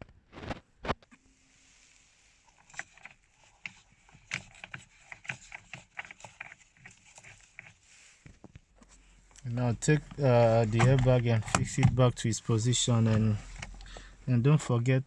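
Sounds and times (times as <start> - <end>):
parts clicking and tapping: 2.6 - 12.2.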